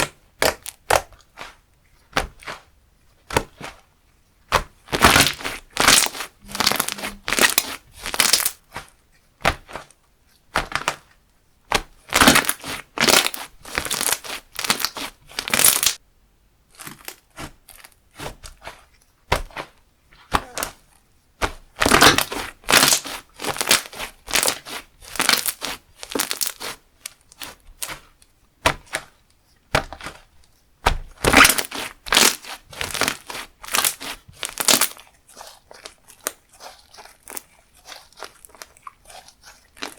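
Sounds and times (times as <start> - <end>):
slime squished crackly popping: 4.5 - 8.6, 11.7 - 16.0, 21.8 - 28.1, 31.2 - 39.9.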